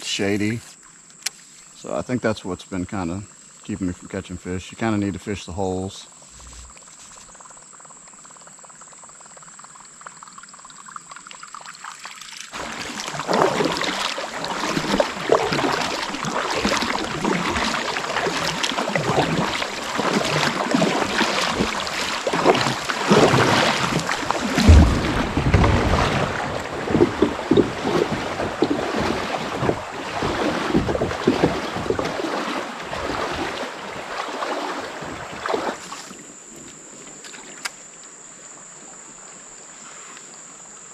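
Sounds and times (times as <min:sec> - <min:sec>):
high insect drone: 0:00.0 - 0:40.9
wind: 0:00.0 - 0:40.9
water rushing around kayak: 0:11.7 - 0:36.3.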